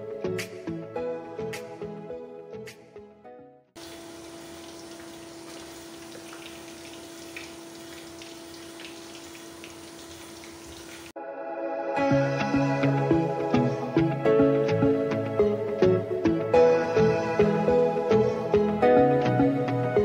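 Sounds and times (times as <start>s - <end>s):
music: 0.0s - 3.8s, 11.2s - 20.0s
chicken frying in hot oil: 3.8s - 11.2s.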